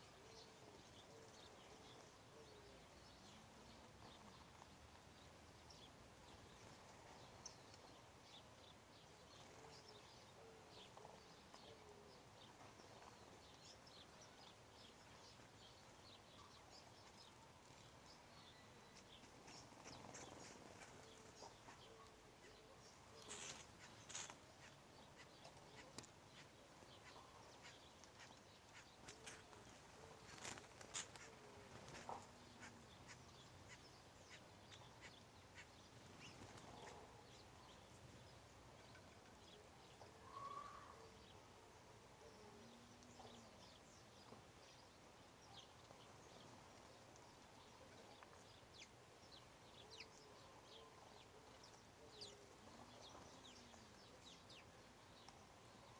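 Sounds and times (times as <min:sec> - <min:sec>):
faint bird calls: 0:18.2 - 0:37.9, 0:38.9 - 0:41.5.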